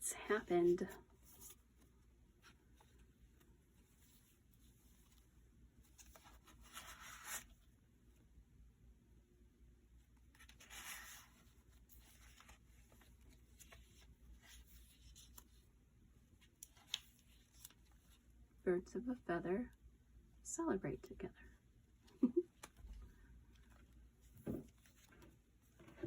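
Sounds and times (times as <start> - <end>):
paper pages rustling: 1.2 - 7.7, 10.2 - 15.7, 16.4 - 18.2, 22.6 - 26.0.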